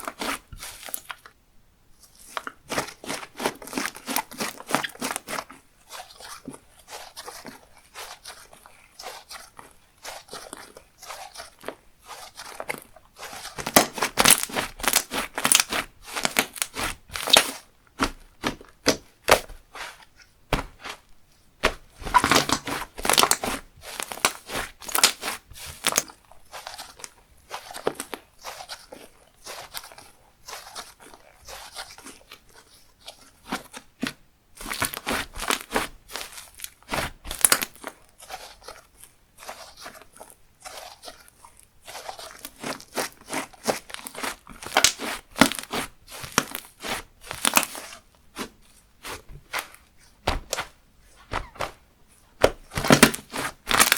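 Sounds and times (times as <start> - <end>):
slime crackling and popping: 13.4 - 19.5, 21.6 - 28.2, 34.6 - 38.7, 42.1 - 49.6, 52.4 - 53.9.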